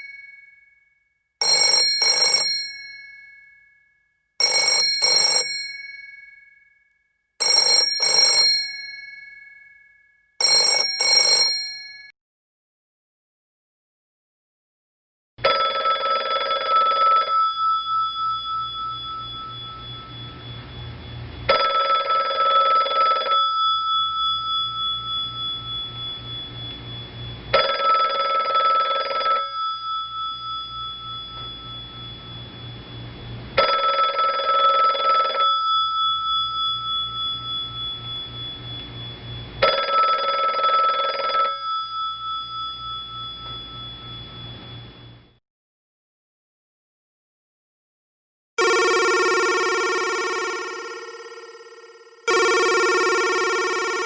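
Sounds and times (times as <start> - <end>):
old telephone bell ringing: 0.0 - 0.6, 1.4 - 3.8, 4.4 - 6.7, 7.4 - 12.1, 15.4 - 20.6, 21.5 - 26.7, 27.5 - 32.8, 33.6 - 38.9, 39.6 - 44.8, 48.6 - 54.0.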